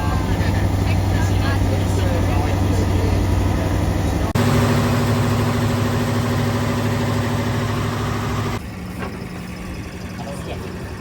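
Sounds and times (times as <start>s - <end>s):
boat engine running: 0.0s - 8.6s.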